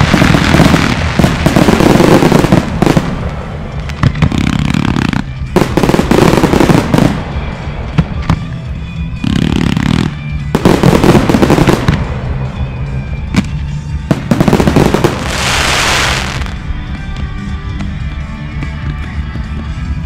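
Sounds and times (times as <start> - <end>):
fireworks bangs: 0.0 - 8.5, 9.2 - 12.7, 13.3 - 16.6
fireworks crackling: 0.0 - 8.5, 9.2 - 12.8, 13.4 - 16.7.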